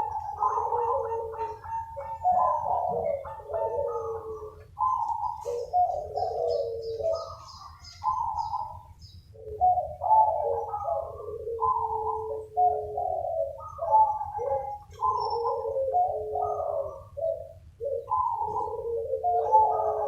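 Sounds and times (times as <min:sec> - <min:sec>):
small bird chirping: 0:00.0 - 0:12.3
doves cooing: 0:00.0 - 0:20.0.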